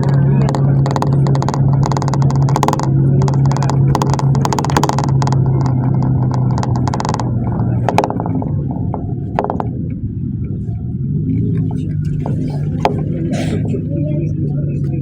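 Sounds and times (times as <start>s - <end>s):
clicks and rattles: 0.0s - 10.0s
engine and road drone: 0.0s - 15.0s.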